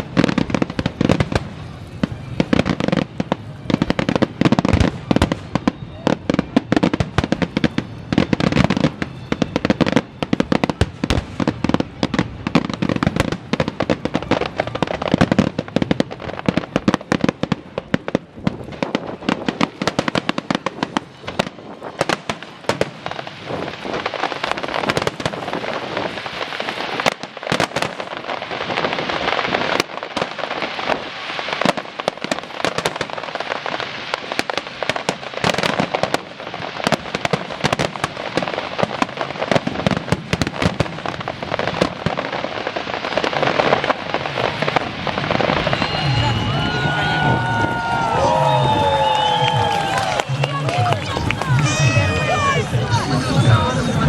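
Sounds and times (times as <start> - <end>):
dense cracking and popping: 49.0 - 51.9.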